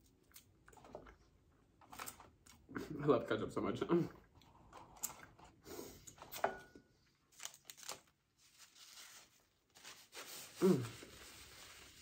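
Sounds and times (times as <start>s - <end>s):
paper rustling: 7.3s - 12.0s.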